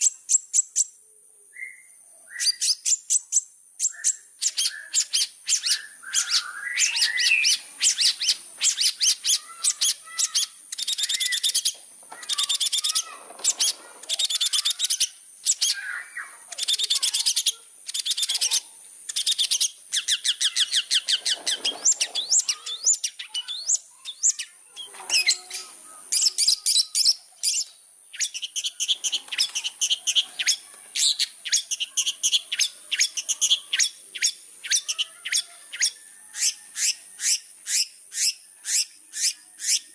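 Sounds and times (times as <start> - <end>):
bird chirping high notes: 1.6 - 35.9.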